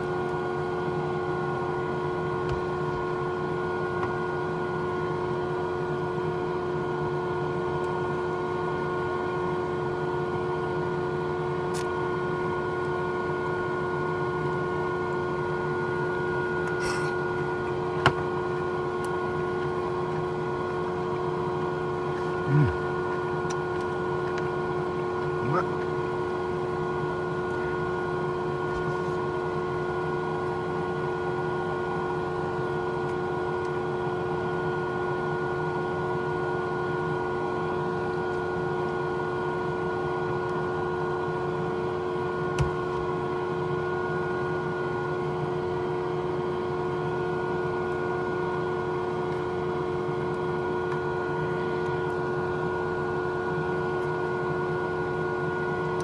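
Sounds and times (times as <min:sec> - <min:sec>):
small motor humming: 0:16.6 - 0:30.0.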